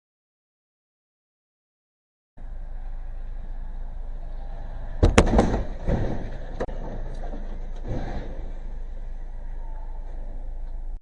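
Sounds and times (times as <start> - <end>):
low vehicle hum: 2.4 - 11.0
loud crash impacts: 5.0 - 8.9.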